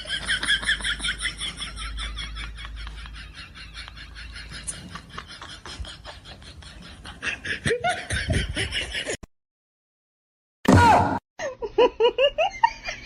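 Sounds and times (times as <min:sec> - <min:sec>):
person laughing: 0:00.0 - 0:09.2.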